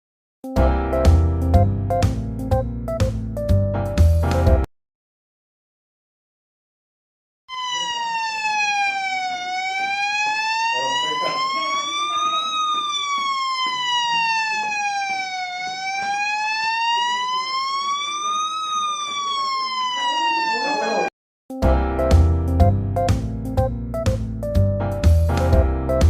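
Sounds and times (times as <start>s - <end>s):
electronic alarm siren wailing: 7.5s - 21.1s.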